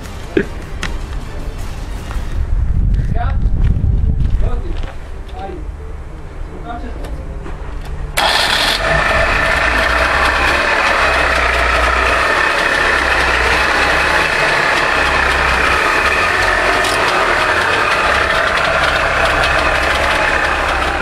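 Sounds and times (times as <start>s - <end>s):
two-stroke car engine idling: 8.2s - 21.0s.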